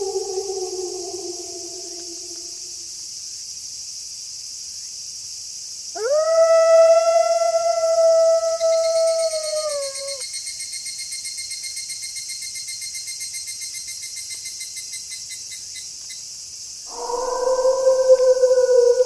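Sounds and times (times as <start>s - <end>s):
wolves howling: 0.0s - 2.8s, 6.0s - 10.2s, 16.9s - 19.0s.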